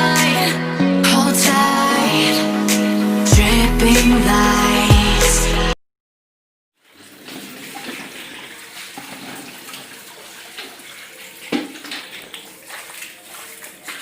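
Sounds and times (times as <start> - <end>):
running splashing water: 6.8 - 14.0.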